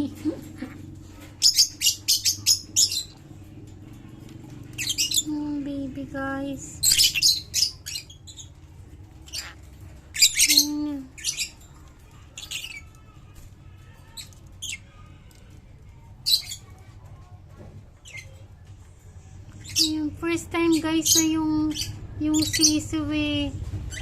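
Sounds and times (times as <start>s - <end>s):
birds squawking shrilly: 1.2s - 3.3s, 6.8s - 8.6s, 9.2s - 11.7s.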